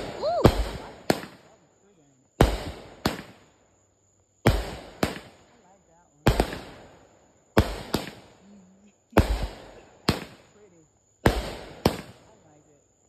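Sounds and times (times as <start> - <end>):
fireworks banging: 0.0 - 1.6, 2.4 - 3.5, 4.4 - 8.5, 9.1 - 12.4.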